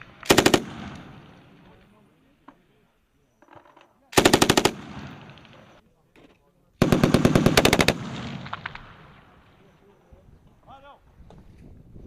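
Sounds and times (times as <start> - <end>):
machine gun firing bursts: 0.2 - 1.0, 4.2 - 5.5, 6.8 - 8.8.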